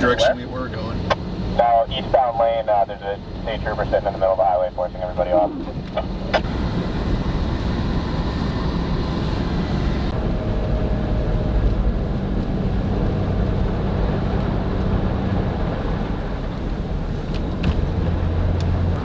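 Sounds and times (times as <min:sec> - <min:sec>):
pickup engine and tyre drone: 0:05.0 - 0:19.0.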